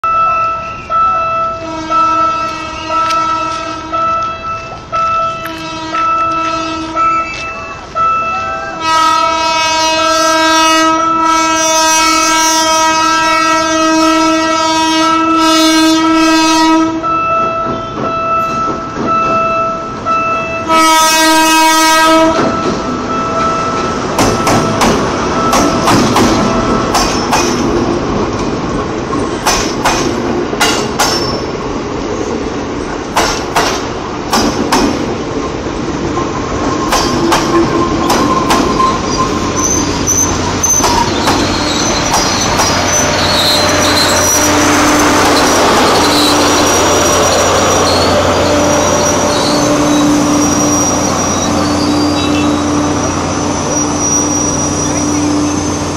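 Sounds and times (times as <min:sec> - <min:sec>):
train rumbling past: 0:00.0 - 0:55.9
locomotive horn blast: 0:01.2 - 0:18.6, 0:20.3 - 0:23.9, 0:38.7 - 0:55.9
wheels clacking over rail joints: 0:22.2 - 0:31.8, 0:32.4 - 0:52.6.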